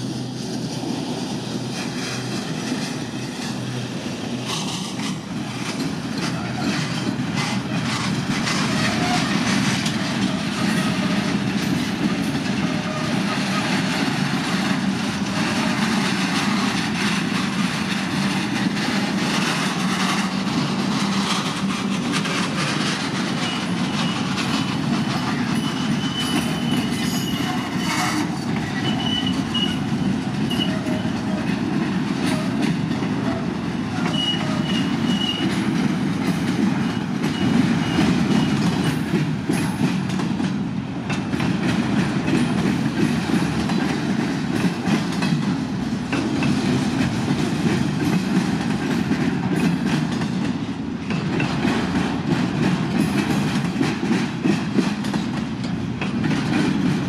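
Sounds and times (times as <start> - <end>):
train wheels clattering and rumbling: 0.0 - 57.0
high wheel squeal: 23.4 - 31.2, 34.0 - 35.6.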